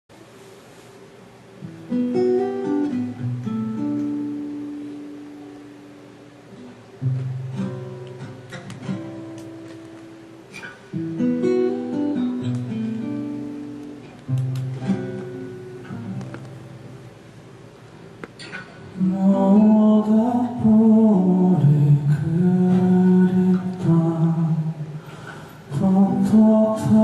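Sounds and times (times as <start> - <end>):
guitar chords ringing: 1.6 - 17.6.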